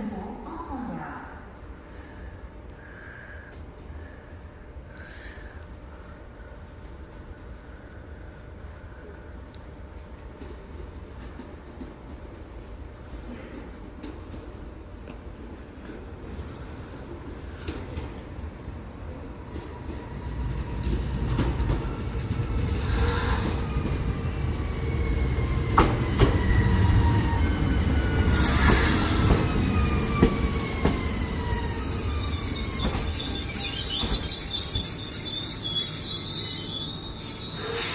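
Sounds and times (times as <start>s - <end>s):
train motor whine: 22.8s - 37.9s
brake squeal: 24.6s - 37.9s.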